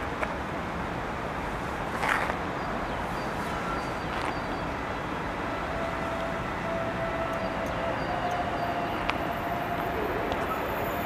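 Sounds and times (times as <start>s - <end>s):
railway hiss and rumble: 0.0s - 11.0s
distant electric train tones: 2.6s - 11.0s.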